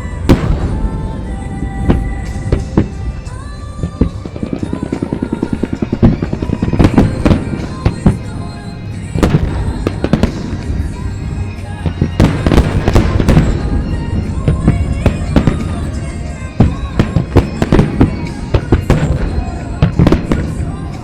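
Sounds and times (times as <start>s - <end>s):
fireworks bursting: 0.0s - 21.0s
heavy fireworks bangs: 0.0s - 21.0s
pop music: 0.0s - 21.0s
rapid fireworks crackling: 0.0s - 21.0s.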